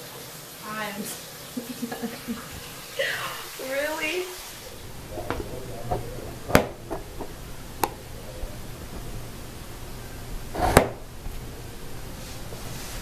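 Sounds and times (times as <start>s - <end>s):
low steady hum: 1.5s - 13.0s
sharp knocks or clicks: 5.3s - 8.0s.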